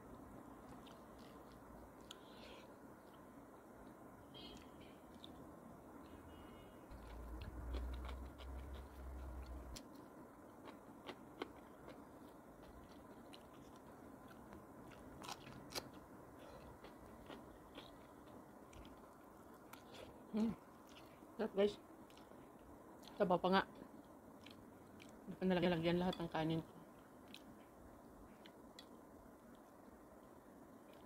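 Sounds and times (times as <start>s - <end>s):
chewing and crunching lettuce: 6.9s - 10.0s, 10.6s - 21.2s.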